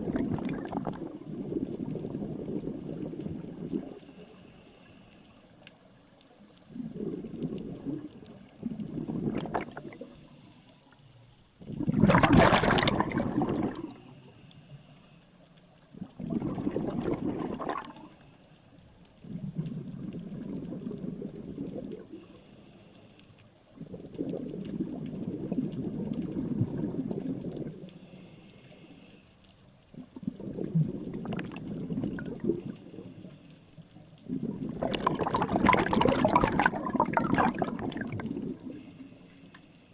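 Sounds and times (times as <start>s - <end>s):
exhaled bubbles gurgling: 0.0s - 4.4s, 6.4s - 10.4s, 11.6s - 14.2s, 15.8s - 18.2s, 19.2s - 22.3s, 23.6s - 28.0s, 29.8s - 39.1s
diver breathing through regulator: 9.4s - 11.0s, 13.4s - 15.4s, 22.1s - 23.4s, 27.9s - 29.5s, 32.4s - 33.8s, 37.4s - 39.9s.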